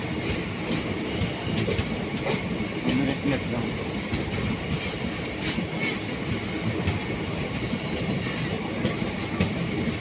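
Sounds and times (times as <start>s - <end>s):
train rumbling on rails: 0.0s - 10.0s.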